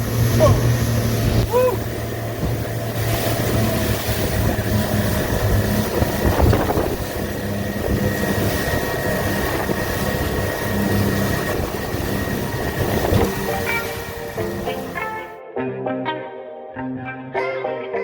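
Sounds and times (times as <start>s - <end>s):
hull thumping on waves: 0.0s - 15.2s
wind: 0.0s - 15.2s
water wash: 0.0s - 15.3s
motorboat engine running: 0.0s - 15.4s.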